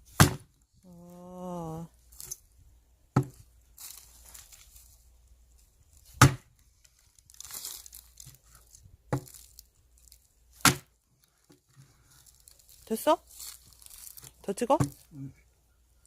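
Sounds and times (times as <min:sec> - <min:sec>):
wood splintering and tearing: 0:06.0 - 0:15.1.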